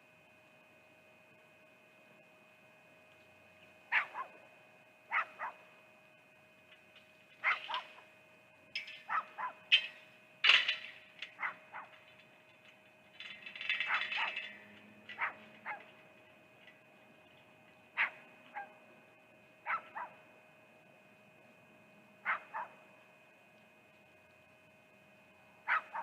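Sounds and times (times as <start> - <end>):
faint electrical hum: 0.0 - 26.0
animal barking and yipping: 3.9 - 4.4, 5.1 - 5.6, 7.4 - 8.0, 9.1 - 9.6, 11.3 - 12.0, 13.8 - 16.0, 18.0 - 18.8, 19.6 - 20.2, 22.2 - 22.8, 25.7 - 26.0.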